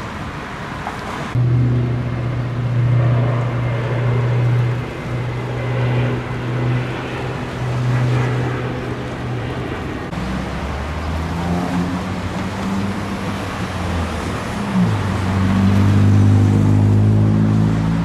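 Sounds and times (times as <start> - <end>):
road and tyre noise: 0.0 - 18.0
vehicle engine running: 1.4 - 7.3.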